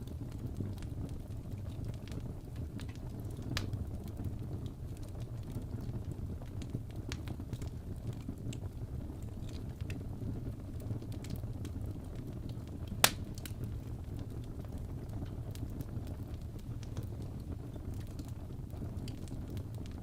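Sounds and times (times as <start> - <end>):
fire popping: 0.0 - 20.0
fireplace fire rumbling: 0.0 - 20.0
loud fire crack: 0.0 - 20.0.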